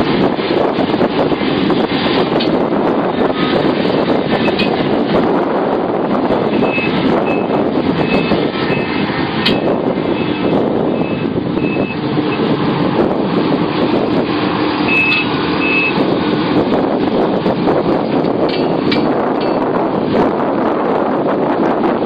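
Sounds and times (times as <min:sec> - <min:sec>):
diesel engine running: 0:00.0 - 0:22.0
backup alarm beeping: 0:06.5 - 0:12.4, 0:14.9 - 0:16.0.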